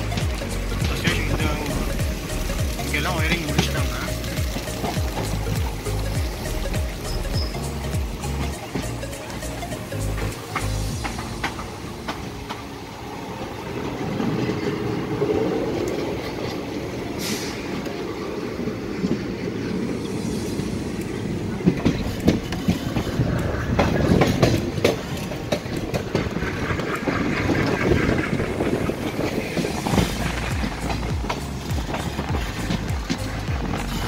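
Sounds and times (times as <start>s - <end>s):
train wheels rumbling on rails: 0.0s - 34.0s
clicks over rail joints: 21.6s - 34.0s.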